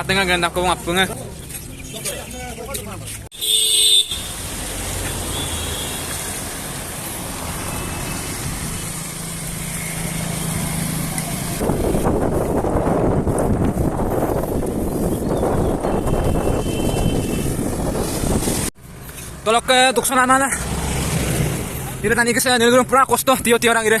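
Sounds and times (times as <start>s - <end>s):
road traffic noise: 0.0s - 24.0s
vehicle engine hum: 4.2s - 22.3s
loud rushing noise: 16.0s - 18.7s.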